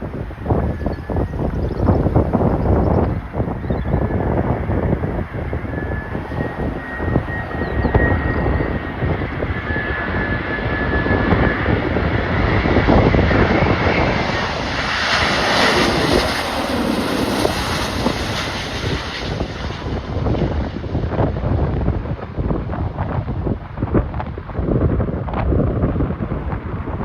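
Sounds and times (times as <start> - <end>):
jet airliner passing overhead: 0.0 - 27.0
wind buffeting microphone: 0.0 - 27.0.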